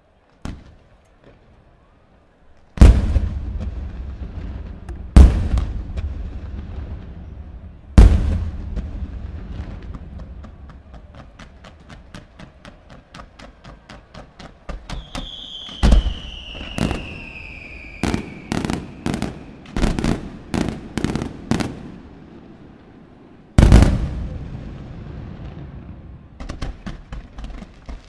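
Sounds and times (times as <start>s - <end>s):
small firework pops: 0.3s - 1.6s, 8.0s - 21.8s, 26.4s - 28.0s
loud firework boom with echo: 2.8s - 11.2s, 15.0s - 21.9s, 23.6s - 27.0s
falling firework whistle: 14.8s - 19.8s.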